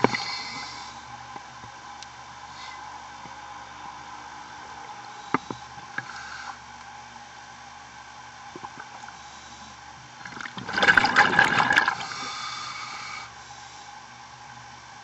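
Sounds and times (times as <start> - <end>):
underwater hiss and hum: 0.0 - 15.0
diver's bubbles gurgling: 8.5 - 9.2, 10.2 - 12.3.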